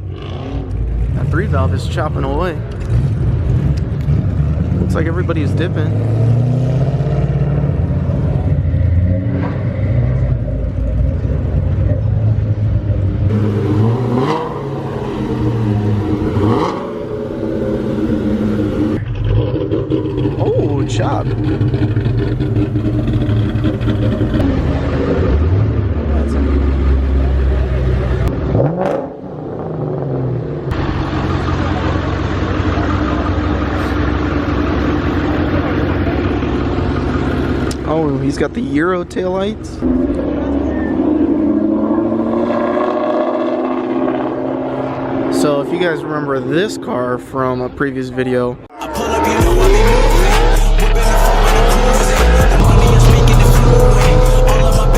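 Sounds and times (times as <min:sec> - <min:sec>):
car engines idling lopey: 0:00.0 - 0:42.6, 0:43.3 - 0:54.9
engines revving: 0:00.0 - 0:54.9.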